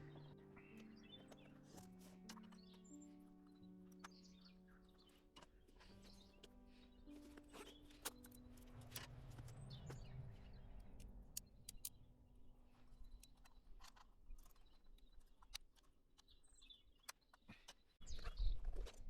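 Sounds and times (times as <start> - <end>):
faint clicks: 3.5 - 12.0.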